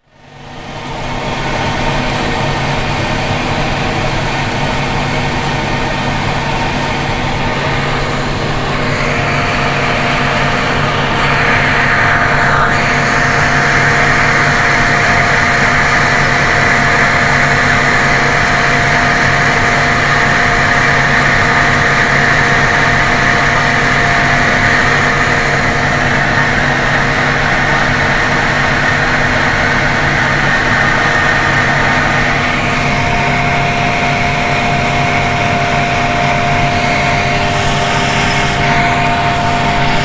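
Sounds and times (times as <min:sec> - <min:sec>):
tractor and harvester drone: 0:00.0 - 0:40.0
steady hum: 0:00.1 - 0:40.0.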